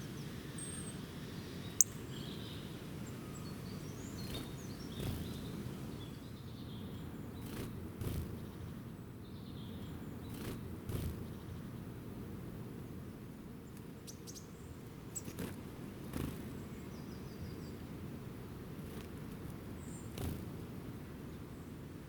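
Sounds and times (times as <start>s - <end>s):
faint bird chirps: 0.0s - 7.1s.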